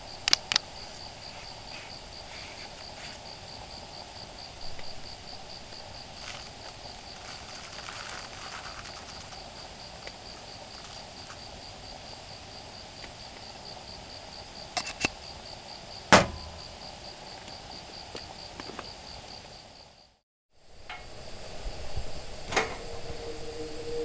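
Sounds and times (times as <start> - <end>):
outdoor background hum: 0.0 - 20.0, 20.6 - 24.0
insects trilling: 0.0 - 24.0
loud metallic clank: 16.1 - 16.8.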